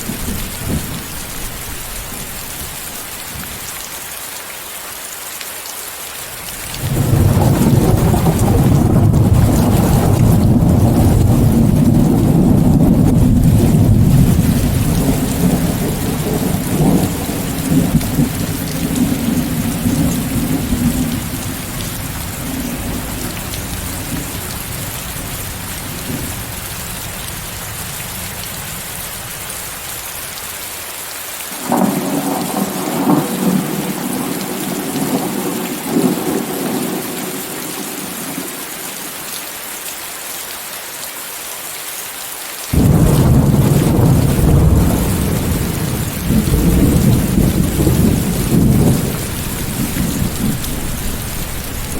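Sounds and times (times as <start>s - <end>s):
crackling peal of thunder: 0.0s - 2.4s, 6.6s - 29.2s, 31.6s - 38.5s, 42.7s - 51.9s
rolling thunder rumble: 0.0s - 2.4s, 6.8s - 26.6s, 31.6s - 38.0s, 42.8s - 51.9s
steady rain: 0.0s - 51.9s.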